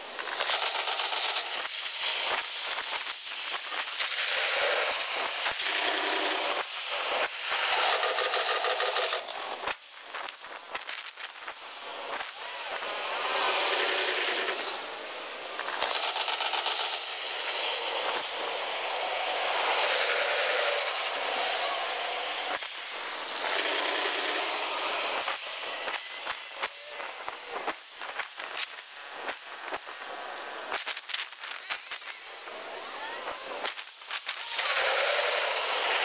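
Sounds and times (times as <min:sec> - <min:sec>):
high hissing rush of trains: 0:00.0 - 0:36.0
rapid sharp clicks: 0:00.2 - 0:11.6, 0:15.6 - 0:18.2.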